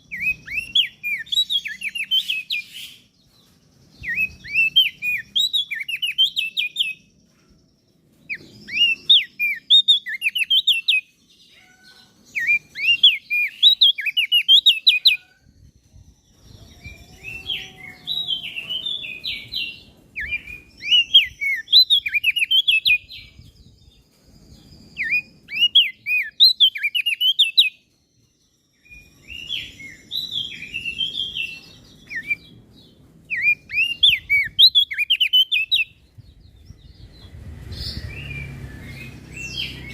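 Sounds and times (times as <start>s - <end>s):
bird chirping song: 0.0s - 39.9s.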